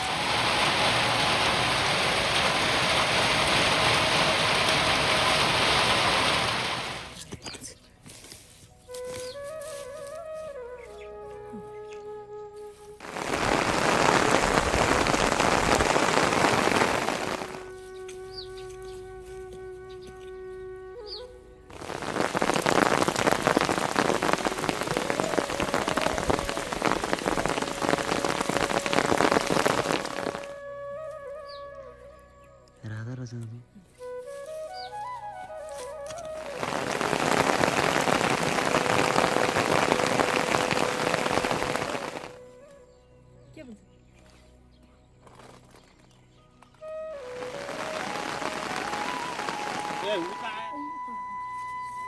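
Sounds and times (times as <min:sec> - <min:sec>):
heavy rain falling: 0:00.0 - 0:07.2, 0:13.0 - 0:17.7, 0:21.7 - 0:30.6, 0:36.3 - 0:42.4, 0:47.1 - 0:50.7.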